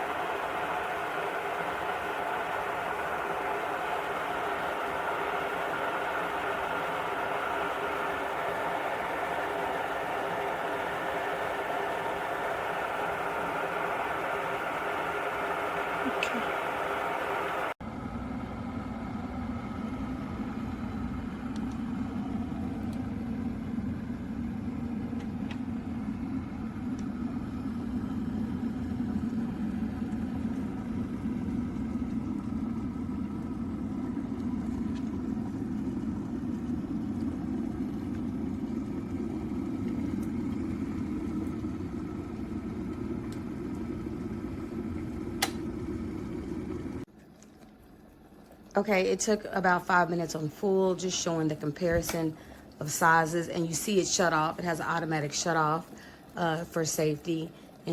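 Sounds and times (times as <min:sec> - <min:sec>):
electric kettle boiling: 0:00.0 - 0:57.9
kettle switch click: 0:45.4 - 0:45.6.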